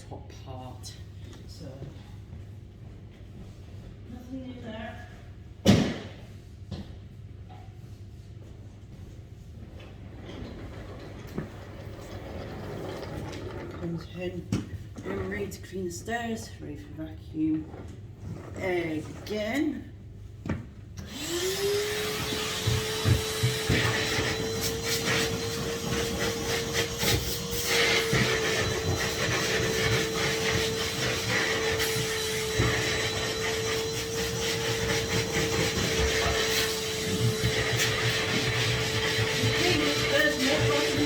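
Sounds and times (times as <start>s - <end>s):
vacuum cleaner whining: 21.0s - 41.0s.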